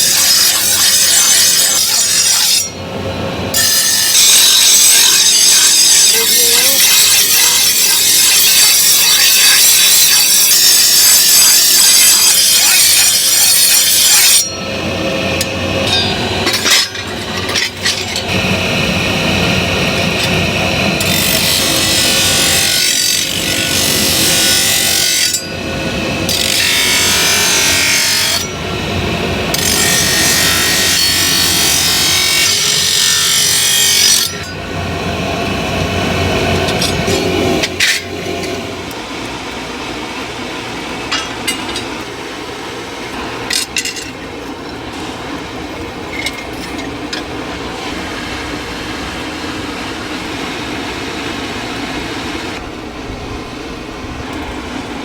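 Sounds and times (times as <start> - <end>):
power tool working material: 17.5 - 38.6.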